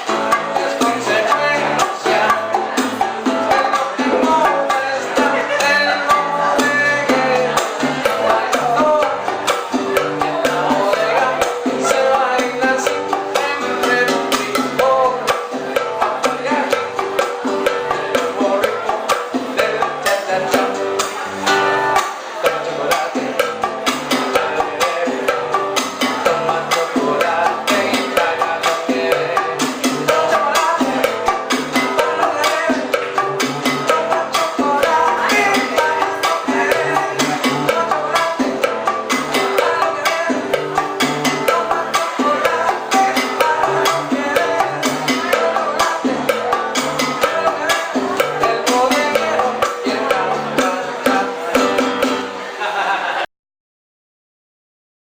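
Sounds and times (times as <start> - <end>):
band playing salsa dance music: 0.0 - 53.2.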